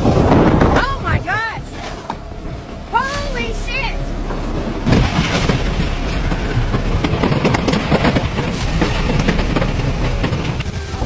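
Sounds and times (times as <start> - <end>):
wind rushing over microphone: 0.0 - 2.9
debris crackling and clattering: 0.0 - 11.0.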